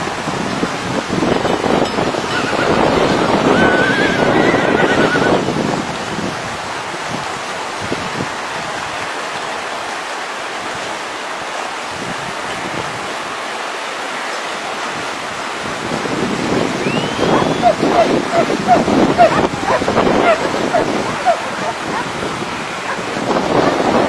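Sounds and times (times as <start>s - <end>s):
river rushing: 0.0s - 24.0s.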